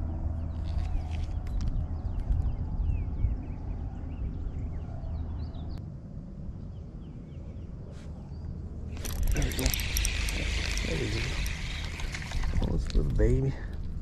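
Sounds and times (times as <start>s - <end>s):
small birds chirping: 6.6s - 13.8s.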